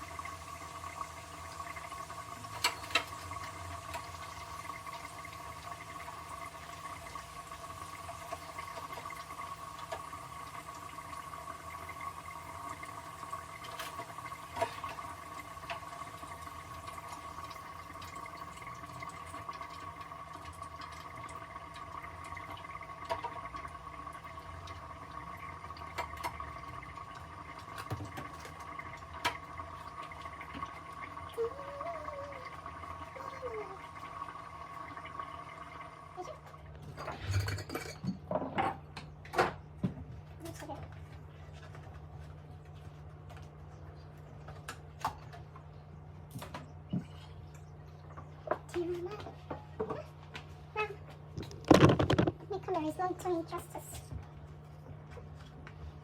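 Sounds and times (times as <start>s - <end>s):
bubbling or running water: 0.0s - 56.0s
kitchen hum: 0.0s - 56.0s
utensils clinking: 37.0s - 38.2s.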